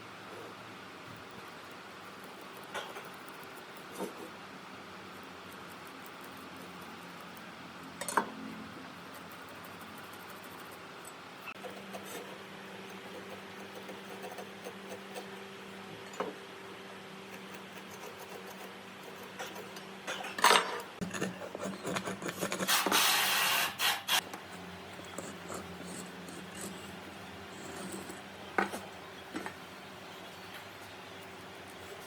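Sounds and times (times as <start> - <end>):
steady low hum: 0.0 - 22.7, 24.2 - 32.0
scraping rasping burst: 21.0 - 24.2.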